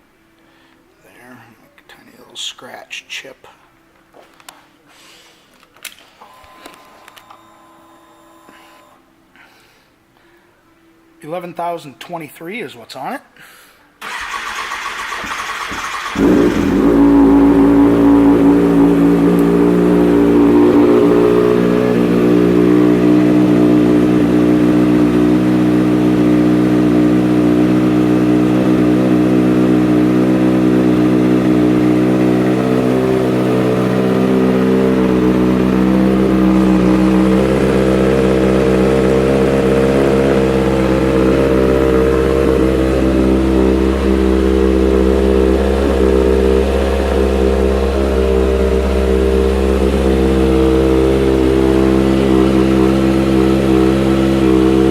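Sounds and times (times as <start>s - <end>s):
motorcycle engine idling: 15.0s - 54.9s.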